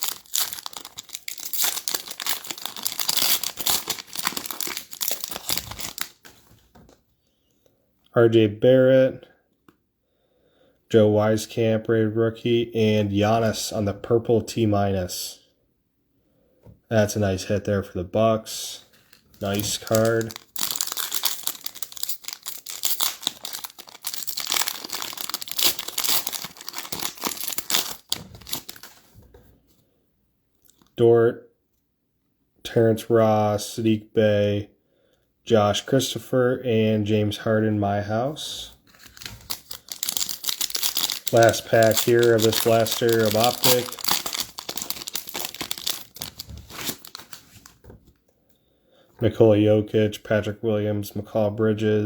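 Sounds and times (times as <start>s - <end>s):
plastic wrapper crinkling and tearing: 0.0s - 6.4s, 18.9s - 29.1s, 38.8s - 47.8s.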